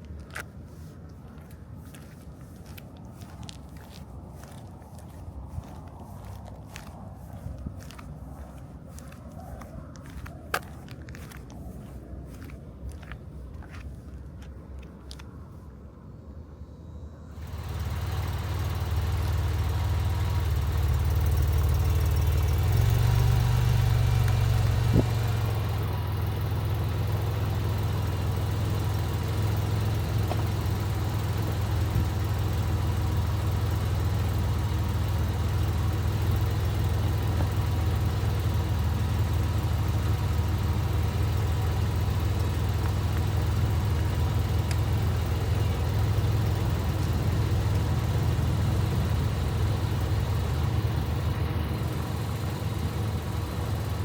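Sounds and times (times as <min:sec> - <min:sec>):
car engine running at low revs: 0:00.0 - 0:54.0.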